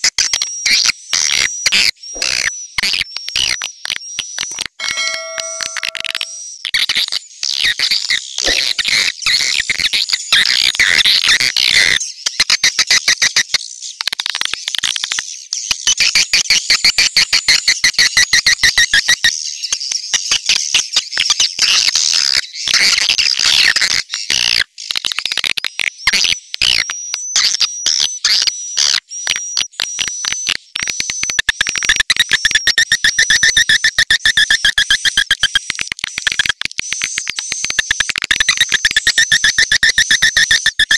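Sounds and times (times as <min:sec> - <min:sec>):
high whistled notes: 0:04.8 - 0:06.4.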